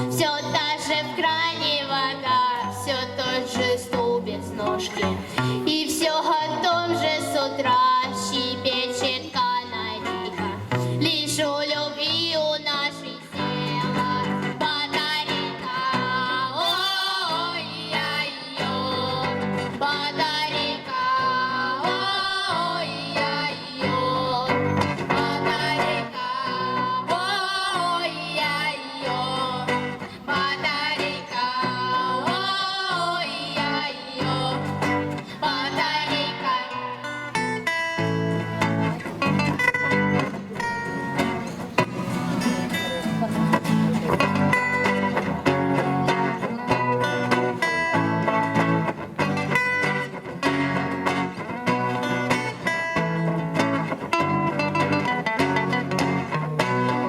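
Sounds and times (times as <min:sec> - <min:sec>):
girls singing together: 0:00.0 - 0:37.4
guitar accompaniment: 0:00.0 - 0:57.0.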